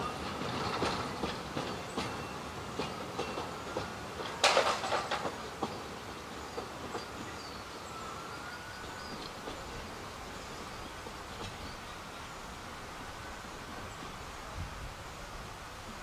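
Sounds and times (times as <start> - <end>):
train carriages clattering over rail joints: 0.0 - 12.0
outdoor background: 0.0 - 16.0.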